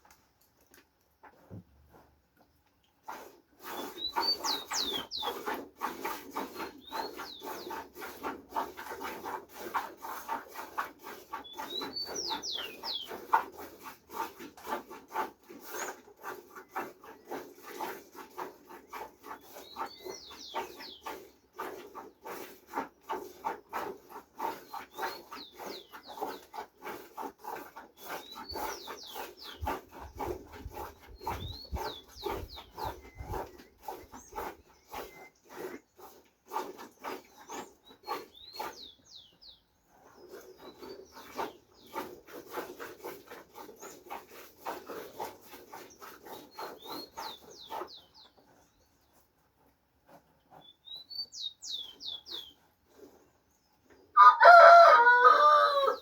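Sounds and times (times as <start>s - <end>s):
small bird chirping: 3.8s - 5.4s, 11.4s - 13.2s, 37.4s - 41.2s, 50.6s - 52.6s.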